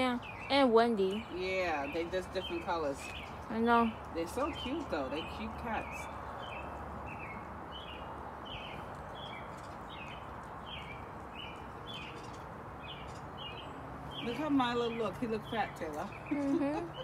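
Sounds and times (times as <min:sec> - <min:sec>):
small bird chirping: 0:00.0 - 0:17.0.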